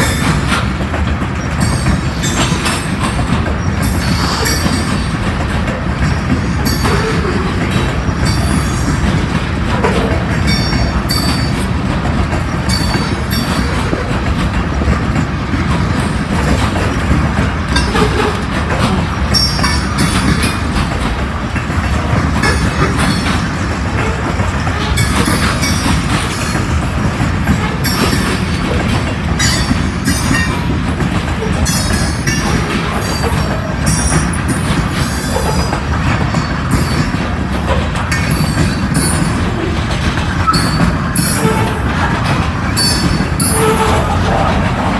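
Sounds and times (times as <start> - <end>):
train wheels clacking on rails: 0.0 - 44.9
high-pitched wheel squeal: 42.8 - 44.5.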